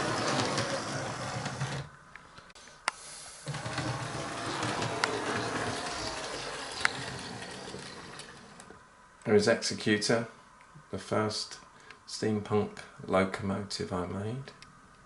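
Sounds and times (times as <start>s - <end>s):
model train motor whirring: 0.0s - 1.8s, 3.4s - 8.8s.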